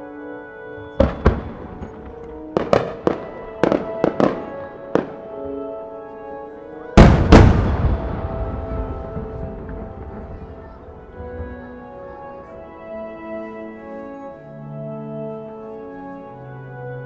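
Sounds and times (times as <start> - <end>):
music with held notes: 0.0 - 17.0
firework shells bursting: 1.0 - 5.2, 7.0 - 11.5
loud firework boom with rumbling echo: 7.0 - 11.5.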